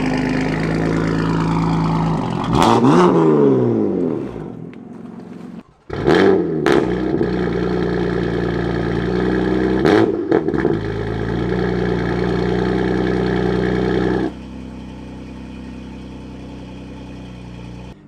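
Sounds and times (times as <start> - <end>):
car engine at fast idle: 0.0 - 3.0, 10.7 - 18.0.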